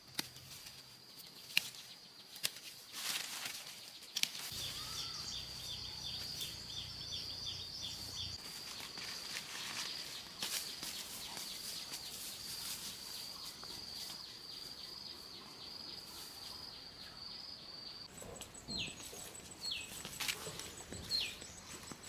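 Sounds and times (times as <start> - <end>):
insects trilling: 4.4 - 21.7.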